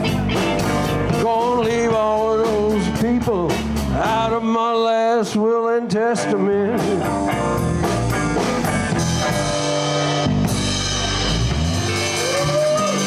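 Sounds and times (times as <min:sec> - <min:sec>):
electric guitar lines: 0:00.0 - 0:01.9, 0:06.7 - 0:13.0
drum hits: 0:00.0 - 0:04.4, 0:06.8 - 0:13.0
bass guitar: 0:00.0 - 0:13.0.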